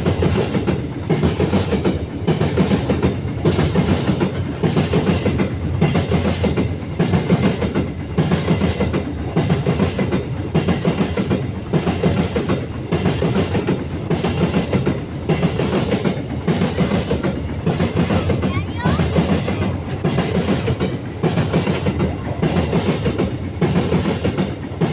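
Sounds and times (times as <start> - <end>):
train wheels clattering over rail joints: 0.0 - 24.9.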